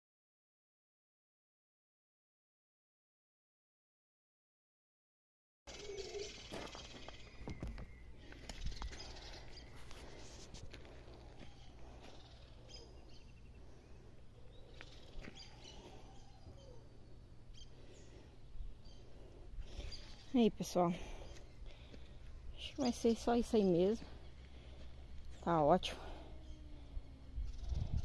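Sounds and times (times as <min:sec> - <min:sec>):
birds chirping: 0:05.7 - 0:28.0
steady low hum: 0:05.7 - 0:28.0.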